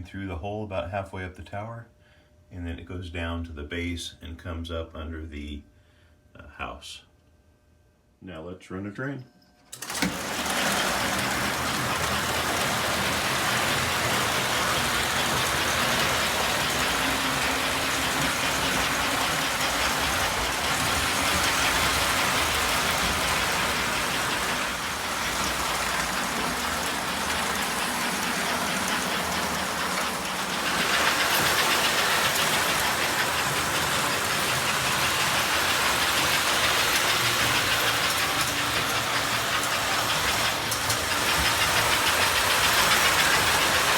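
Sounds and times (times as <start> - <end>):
model train rumbling and rattling: 9.8 - 43.9.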